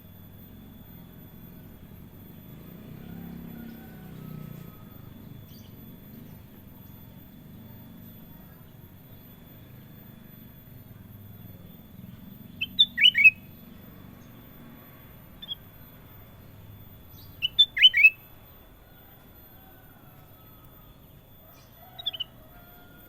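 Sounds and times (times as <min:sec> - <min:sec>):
bulbul calling: 0:12.4 - 0:13.6, 0:15.4 - 0:16.0, 0:17.0 - 0:18.6, 0:20.6 - 0:22.6.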